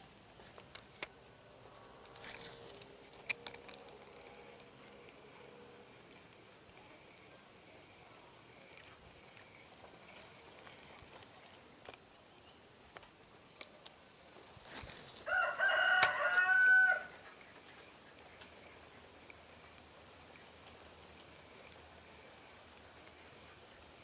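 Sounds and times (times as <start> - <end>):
rooster crowing: 15.2 - 17.3.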